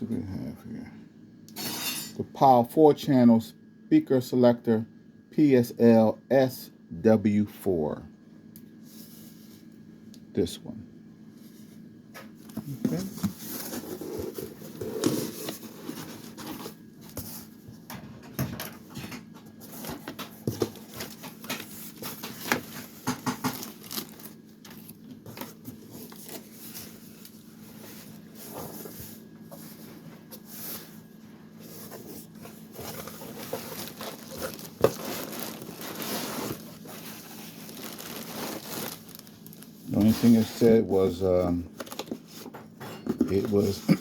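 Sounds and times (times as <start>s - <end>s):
faint steady hum: 0.0s - 44.0s
packaging rustling and crinkling: 12.4s - 17.8s, 19.5s - 40.8s, 41.7s - 42.5s.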